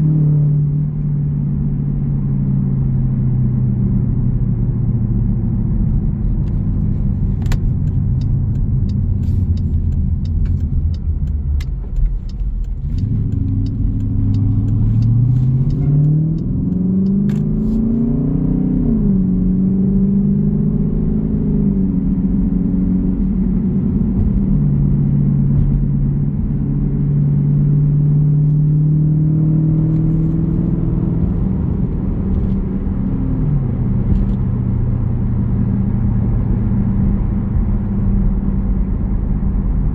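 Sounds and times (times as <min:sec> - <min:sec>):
car exhaust rumbling: 0:00.0 - 0:18.2, 0:21.1 - 0:39.9
light regular ticking: 0:06.5 - 0:17.6.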